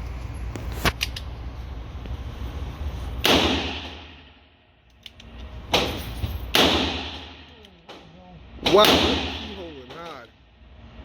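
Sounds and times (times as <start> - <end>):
revolver shots with ringing echo: 3.2 - 4.4, 5.7 - 9.7.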